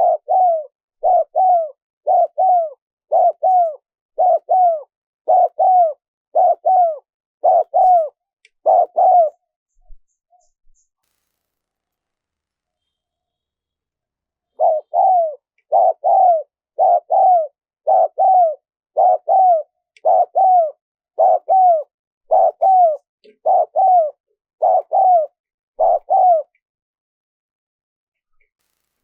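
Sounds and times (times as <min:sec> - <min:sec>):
dove cooing: 0:00.0 - 0:09.4, 0:14.6 - 0:26.6.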